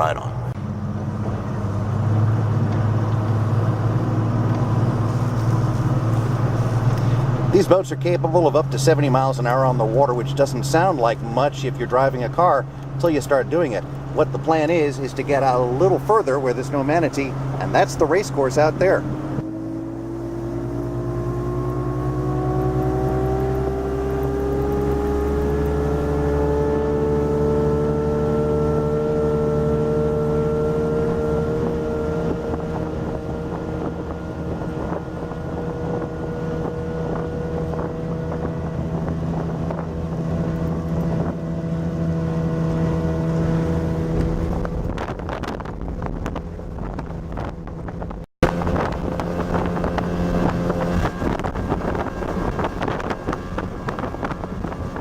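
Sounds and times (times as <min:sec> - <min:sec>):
outboard motor speedboat: 0:00.0 - 0:55.0
wind on microphone: 0:01.0 - 0:07.7, 0:18.8 - 0:55.0.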